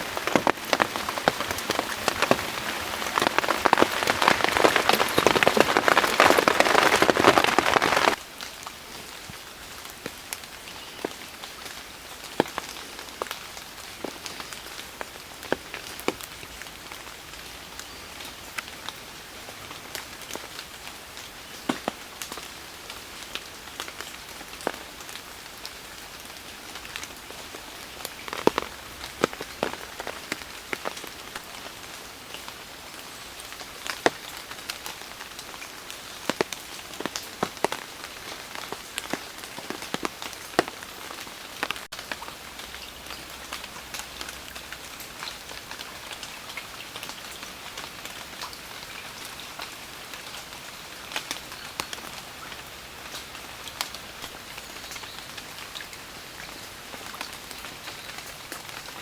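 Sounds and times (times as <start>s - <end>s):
heavy drops ticking: 0.0s - 8.2s
steady rain: 0.0s - 59.0s.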